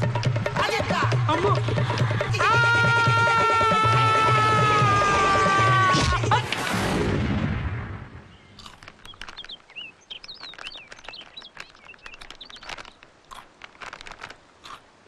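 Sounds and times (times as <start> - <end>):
birds chirping: 8.2 - 15.0.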